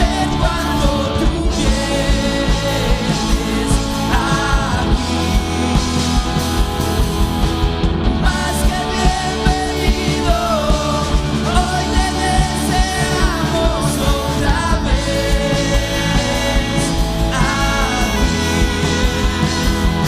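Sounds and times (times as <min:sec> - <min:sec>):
steady drum beat: 0:00.0 - 0:20.0
worship band music: 0:00.0 - 0:20.0.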